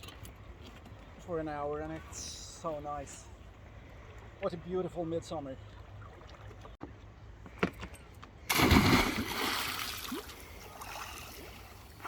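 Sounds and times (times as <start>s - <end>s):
loud water splash: 8.5s - 11.6s.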